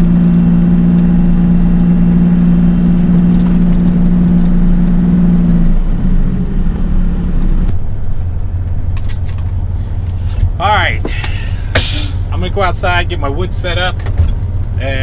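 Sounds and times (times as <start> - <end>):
truck diesel engine running: 0.0 - 7.7.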